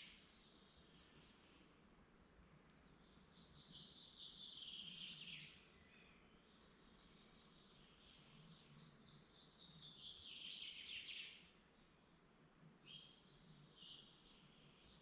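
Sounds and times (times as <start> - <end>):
songbird trill: 0.0 - 15.0.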